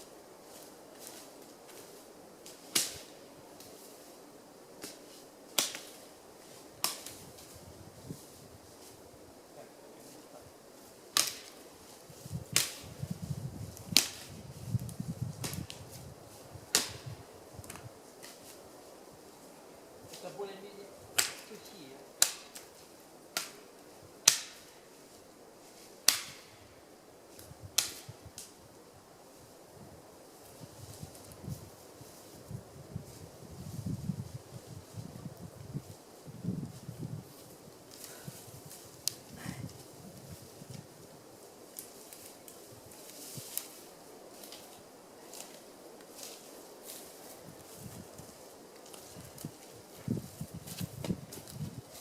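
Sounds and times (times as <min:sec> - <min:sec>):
dry branches snapping: 0:00.5 - 0:04.0, 0:04.8 - 0:08.2, 0:11.1 - 0:18.6, 0:20.0 - 0:20.4, 0:21.0 - 0:24.9, 0:25.7 - 0:26.6, 0:27.3 - 0:28.6, 0:36.7 - 0:52.0
dry wood cracking: 0:11.1 - 0:11.6, 0:21.1 - 0:21.6
small crackles: 0:30.3 - 0:52.0.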